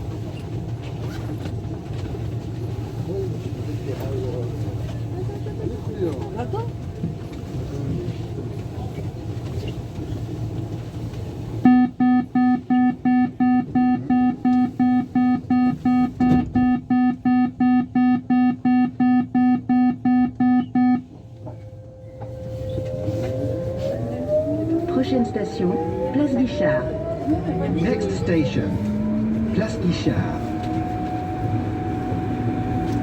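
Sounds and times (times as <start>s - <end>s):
train rising whine: 11.2s - 33.0s
door-closing warning beeps: 11.7s - 21.1s.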